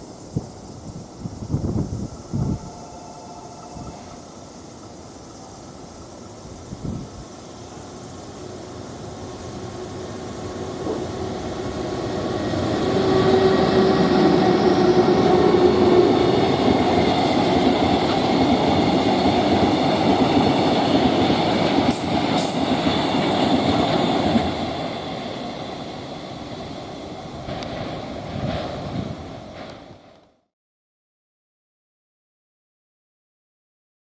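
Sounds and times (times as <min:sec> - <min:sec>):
freight train passing: 0:00.0 - 0:30.4.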